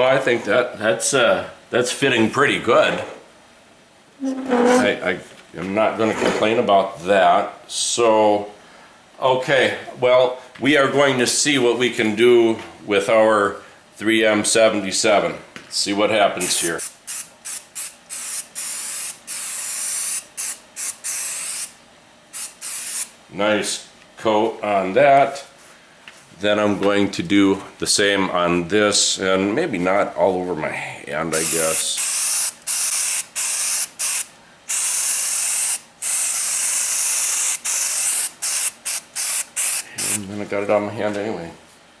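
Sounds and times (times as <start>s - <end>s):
aerosol can spraying: 16.4s - 21.7s, 22.4s - 23.1s, 31.4s - 40.3s.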